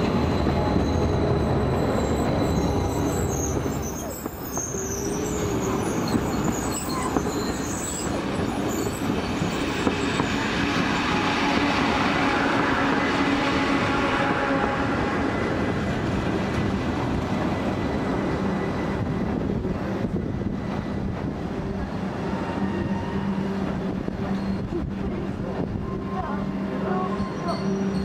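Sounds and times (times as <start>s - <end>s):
train rumbling on track: 0.0s - 28.0s
wheel and brake squeals: 0.2s - 11.2s, 24.3s - 24.8s, 27.0s - 28.0s.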